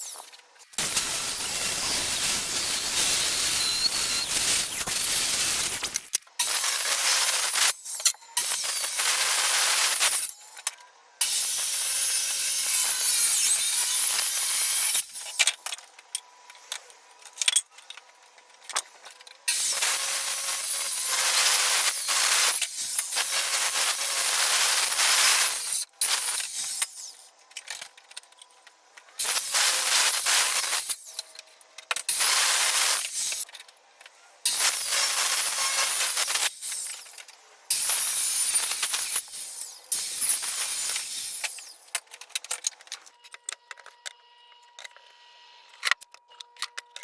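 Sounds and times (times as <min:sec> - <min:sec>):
circular saw cutting wood: 0:00.8 - 0:10.3.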